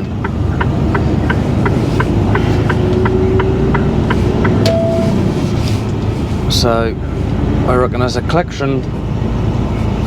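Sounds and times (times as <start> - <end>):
turn indicator ticking: 0.0 - 5.0
truck engine and road drone: 0.0 - 10.0.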